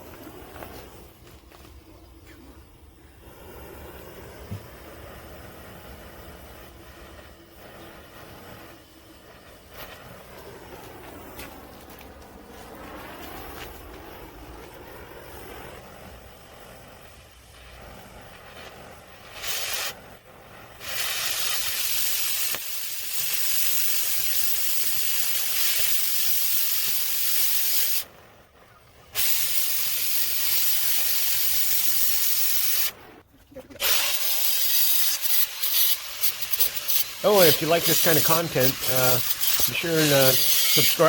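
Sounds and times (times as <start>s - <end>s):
low rumble: 0.0s - 19.2s
loud even hissing: 0.0s - 41.0s.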